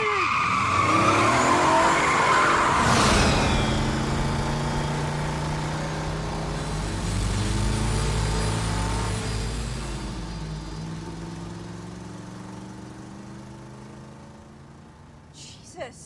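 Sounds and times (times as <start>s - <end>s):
high screech: 0.0s - 6.0s
steady engine drone: 2.6s - 15.6s.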